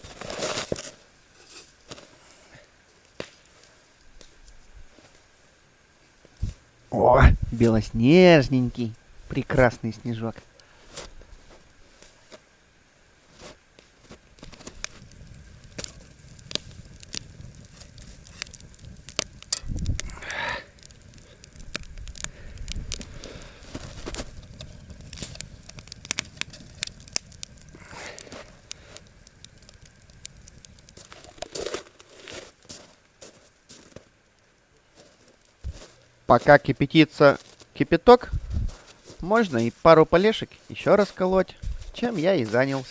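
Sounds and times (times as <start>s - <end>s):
rustling scrape: 0.0s - 2.5s, 23.6s - 25.4s, 31.0s - 34.0s, 40.5s - 42.9s
campfire crackling and popping: 0.0s - 42.9s.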